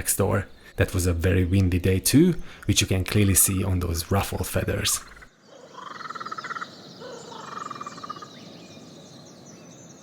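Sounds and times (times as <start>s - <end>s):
small high bird chirps: 5.0s - 10.0s.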